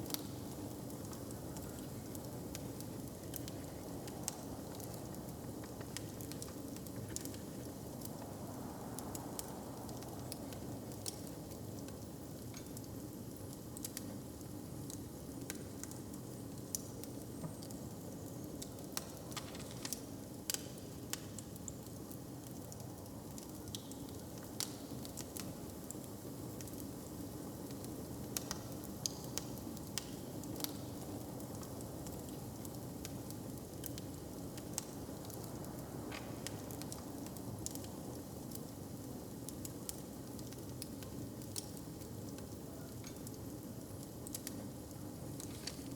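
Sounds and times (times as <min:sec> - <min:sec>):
fire crackling and popping: 0:00.0 - 0:45.9.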